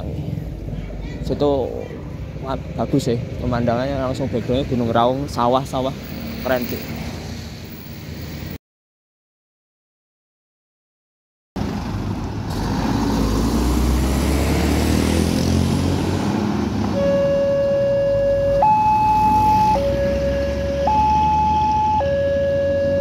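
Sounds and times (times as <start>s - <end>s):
road traffic rumbling: 0.0s - 8.6s, 11.6s - 23.0s
two-tone crossing warning alarm: 17.0s - 23.0s.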